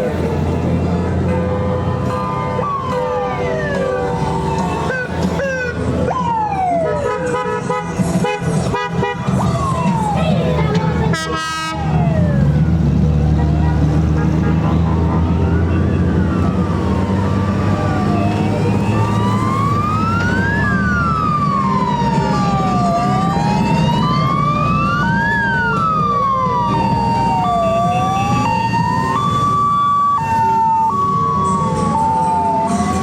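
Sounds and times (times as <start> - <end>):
wailing siren: 0.0 - 7.4, 9.1 - 33.0
motorcycle engines rumbling: 0.0 - 33.0
two-tone siren: 1.6 - 7.3, 14.6 - 33.0.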